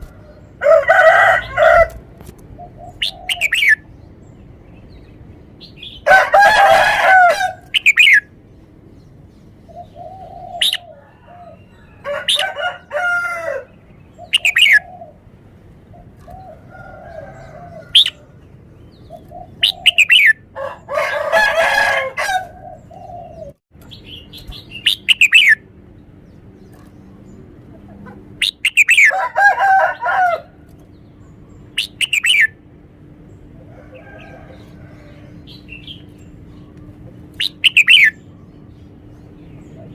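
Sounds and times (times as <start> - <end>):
bird singing whistled phrases: 24.8 - 25.6, 31.8 - 32.5, 37.4 - 38.2.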